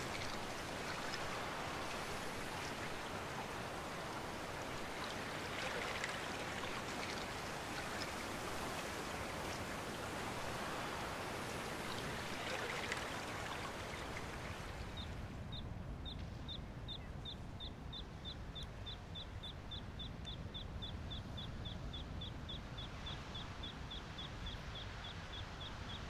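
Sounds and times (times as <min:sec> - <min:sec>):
running water: 0:00.0 - 0:14.9
surf washing: 0:00.0 - 0:14.9.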